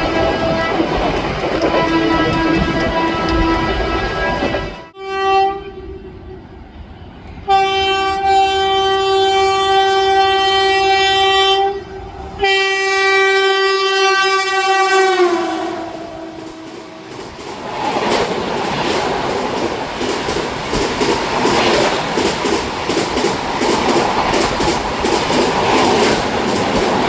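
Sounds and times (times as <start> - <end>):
locomotive air horn blasts: 0.0 - 6.4, 7.4 - 17.2
train passing: 0.0 - 27.0.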